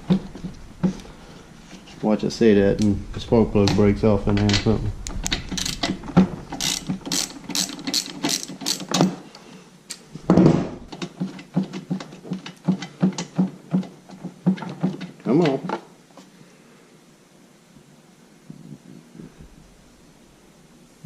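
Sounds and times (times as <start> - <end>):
ratchet wrench clicking: 5.5 - 5.9, 6.5 - 9.1.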